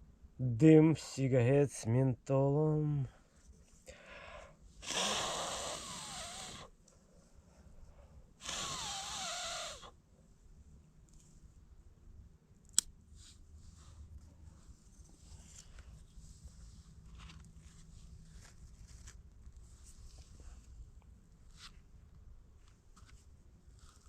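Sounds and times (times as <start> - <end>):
person blowing breath onto kindling: 3.9 - 6.7, 8.4 - 9.9
sharp click: 12.7 - 12.9.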